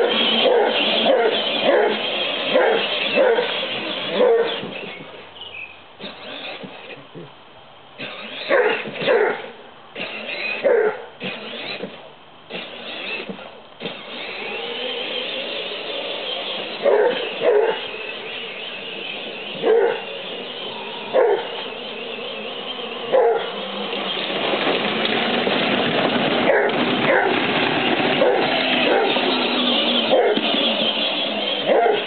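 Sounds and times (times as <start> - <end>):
dog barking: 0.0 - 4.6, 8.5 - 9.5, 10.6 - 11.1, 16.8 - 17.9, 19.6 - 20.1, 21.1 - 21.5, 23.1 - 23.5, 26.5 - 27.3, 28.2 - 29.2, 30.1 - 30.5, 31.6 - 32.0
vehicle rushing noise: 12.6 - 32.0.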